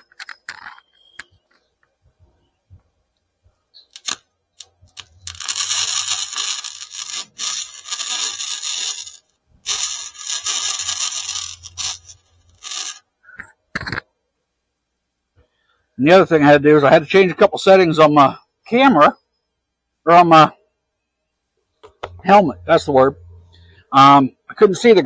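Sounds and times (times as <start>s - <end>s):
welder arc crackling and hissing: 3.8s - 13.1s.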